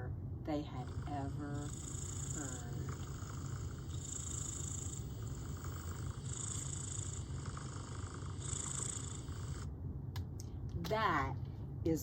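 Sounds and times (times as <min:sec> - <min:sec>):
cat purring: 0:00.6 - 0:09.7.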